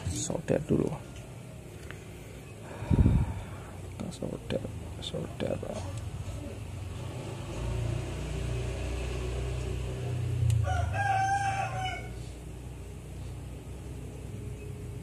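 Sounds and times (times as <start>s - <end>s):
low steady rumble: 0.0s - 6.9s
rooster crowing: 10.6s - 12.4s.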